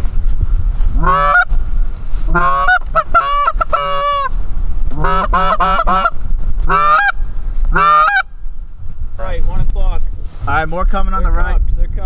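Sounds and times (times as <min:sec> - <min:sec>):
steady low rumble: 0:00.0 - 0:12.0
goose honking: 0:01.0 - 0:01.6, 0:02.3 - 0:08.3.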